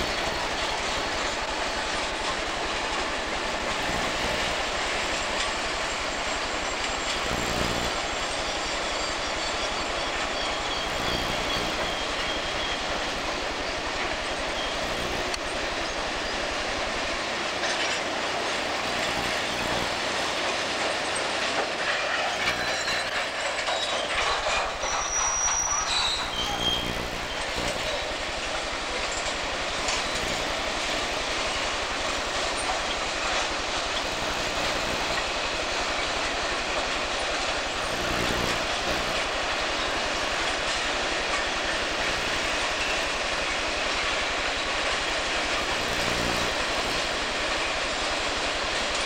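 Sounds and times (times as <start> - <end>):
clickety-clack of train cars: 0.0 - 49.0
freight train rolling on rails: 0.0 - 49.0
high-pitched wheel squeal: 3.8 - 16.4, 22.3 - 31.2.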